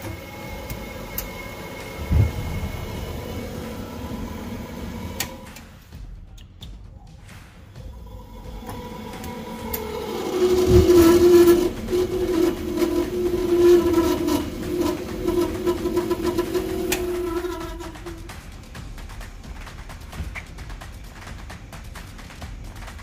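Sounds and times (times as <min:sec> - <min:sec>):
boiler fan humming: 0:00.0 - 0:06.0, 0:07.8 - 0:23.0
thump: 0:02.0 - 0:03.4.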